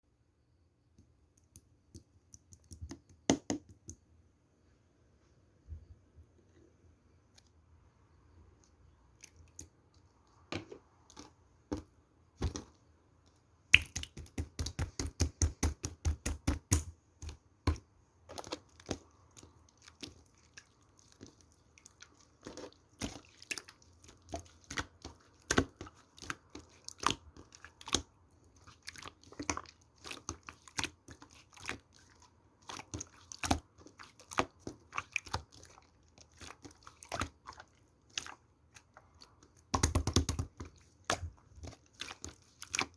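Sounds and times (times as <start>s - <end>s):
slime squished by hand popping: 13.7s - 17.8s.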